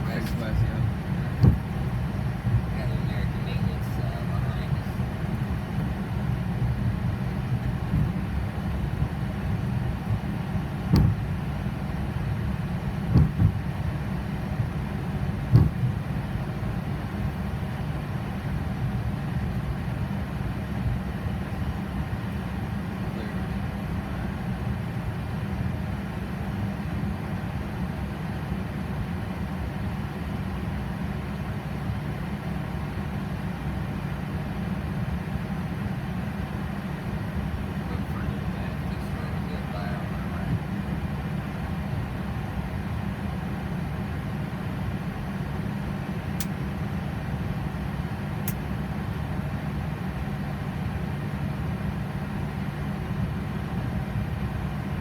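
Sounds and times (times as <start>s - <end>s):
airplane engines idling: 0.0s - 55.0s
brief knocks: 1.4s - 1.7s, 10.9s - 11.3s, 15.5s - 15.9s.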